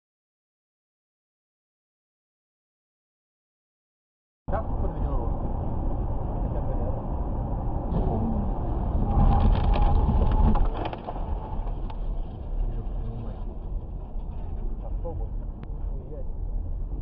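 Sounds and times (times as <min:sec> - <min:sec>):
car engine and road noise: 0:04.5 - 0:17.0.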